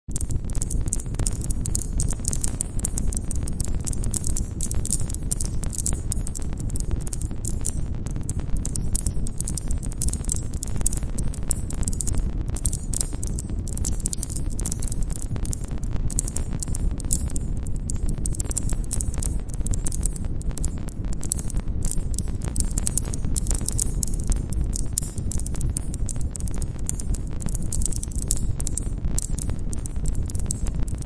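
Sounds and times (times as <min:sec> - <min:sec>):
campfire crackling and popping: 0:00.1 - 0:31.0.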